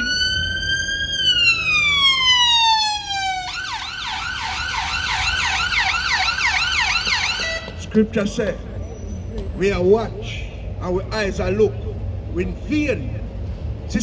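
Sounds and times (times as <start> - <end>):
emergency vehicle siren: 0.0 - 8.0.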